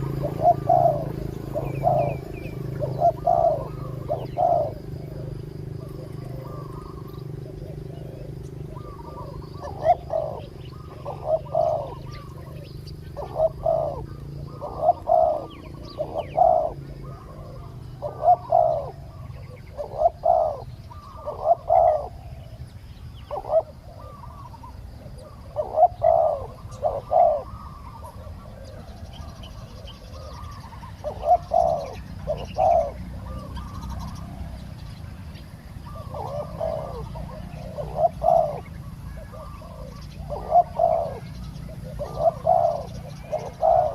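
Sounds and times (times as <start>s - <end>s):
doves cooing: 0.0s - 43.9s.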